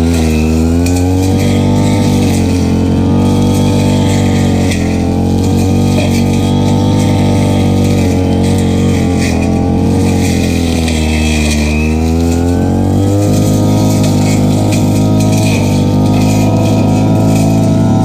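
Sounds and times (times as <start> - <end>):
brush cutter engine running: 0.0 - 18.0.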